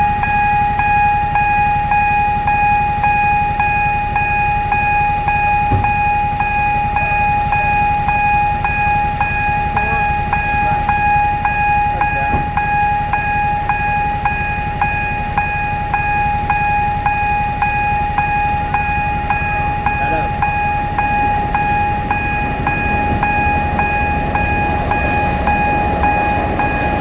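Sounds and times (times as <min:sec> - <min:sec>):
continuous high tone: 0:00.0 - 0:27.0
level crossing warning bell: 0:00.0 - 0:27.0
low rumble: 0:17.0 - 0:27.0.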